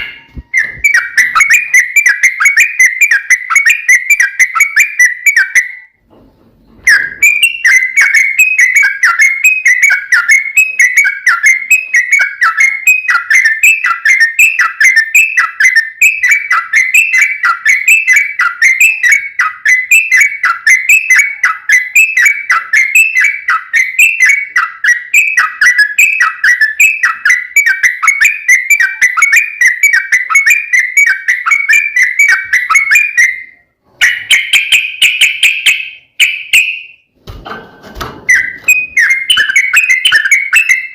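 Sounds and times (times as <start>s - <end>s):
bulbul singing: 0.0s - 6.0s, 6.9s - 37.1s, 38.2s - 40.9s.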